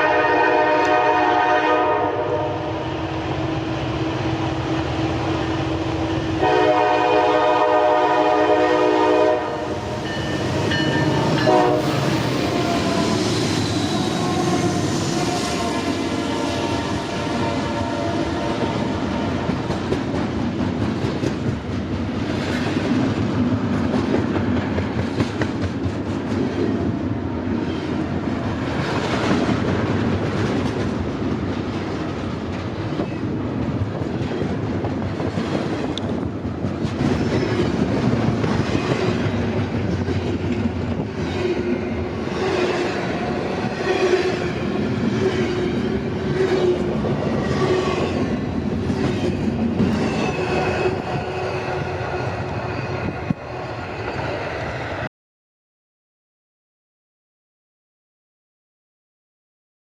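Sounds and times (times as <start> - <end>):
train horn chord: 0.0 - 4.1, 6.2 - 10.0, 10.9 - 13.2
train wheels clattering over rails: 18.7 - 26.9, 28.7 - 41.4.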